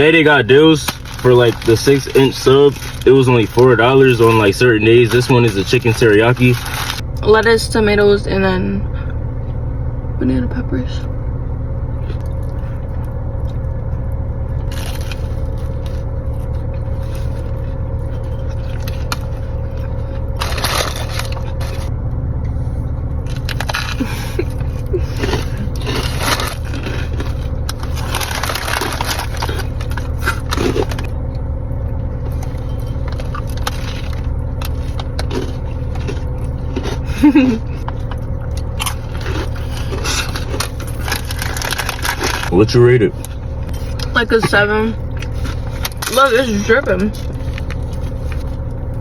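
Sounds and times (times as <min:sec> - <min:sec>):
steady low hum: 0:00.0 - 0:49.0
person chewing crunchy food: 0:00.8 - 0:07.0, 0:12.0 - 0:21.9, 0:22.5 - 0:42.5, 0:43.2 - 0:46.1.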